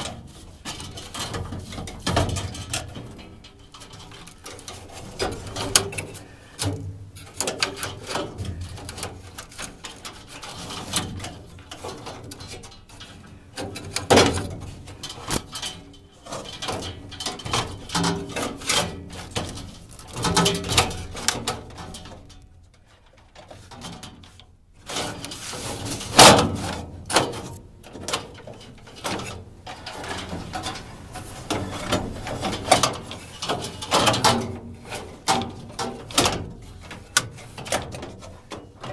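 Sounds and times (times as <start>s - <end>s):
filter scraping and rustling: 22.8s - 38.9s.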